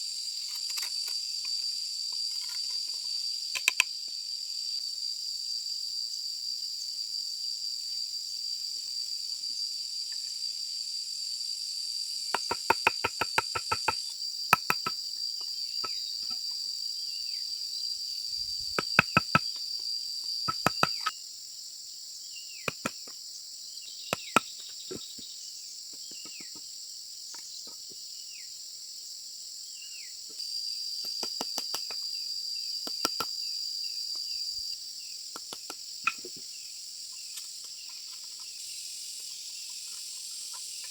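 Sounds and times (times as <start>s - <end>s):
high insect drone: 0.0s - 40.9s
sharp knocks on bamboo: 12.3s - 14.0s, 14.6s - 15.0s, 18.8s - 19.5s, 20.5s - 21.1s, 22.7s - 23.2s, 24.1s - 25.1s, 32.9s - 33.3s, 35.4s - 36.4s.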